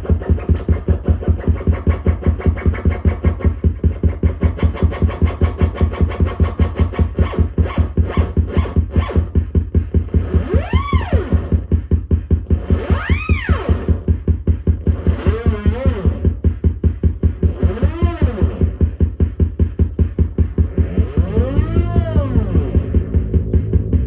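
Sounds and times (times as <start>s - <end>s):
pulsing synthesizer loop: 0.0s - 24.0s
heavy deep bass: 18.4s - 24.0s
swooping synth tone: 20.6s - 24.0s.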